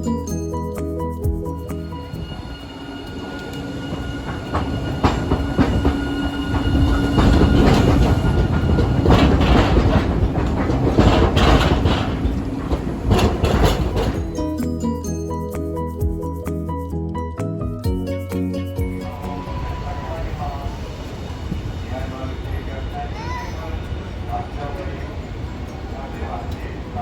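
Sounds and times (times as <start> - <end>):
streetcar motor whine: 0.0 - 15.0, 18.9 - 27.0
wheels clattering over rail joints: 1.4 - 14.7, 19.0 - 27.0.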